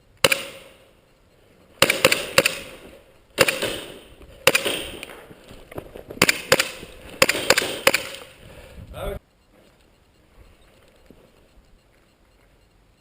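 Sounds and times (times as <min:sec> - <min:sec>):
airsoft gun shots: 0:00.2 - 0:00.8, 0:01.8 - 0:02.8, 0:03.4 - 0:05.1, 0:06.2 - 0:08.3.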